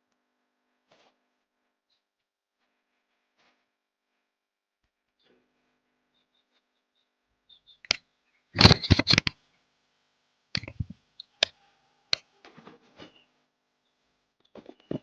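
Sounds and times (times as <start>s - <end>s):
handling clicks and knocks: 8.6s - 9.3s, 10.6s - 11.0s.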